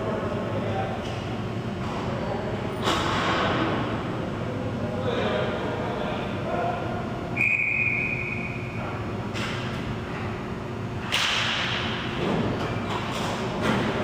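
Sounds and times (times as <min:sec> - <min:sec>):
referee's whistle: 0:07.4 - 0:08.7.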